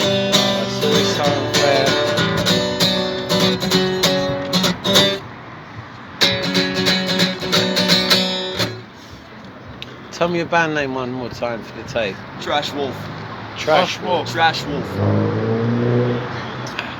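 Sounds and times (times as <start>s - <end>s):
acoustic guitar strumming: 0.0s - 5.3s, 6.2s - 9.2s.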